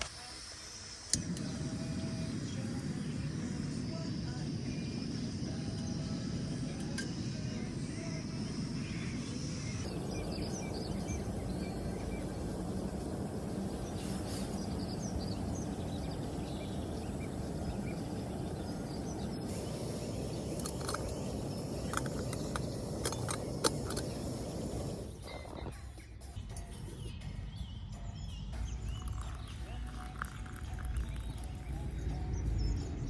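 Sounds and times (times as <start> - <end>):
sharp clicks: 20.4 - 24.2.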